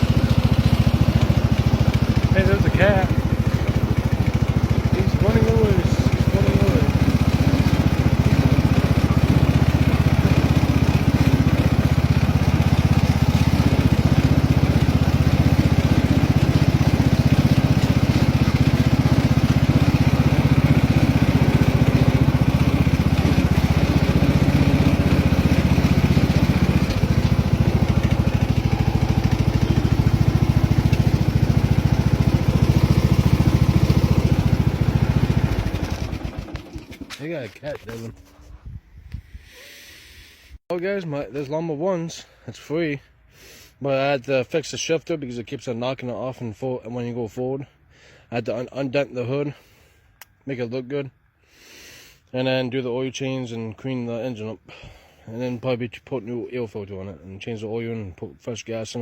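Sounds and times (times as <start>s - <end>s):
riding lawnmower engine running: 0.0s - 38.4s.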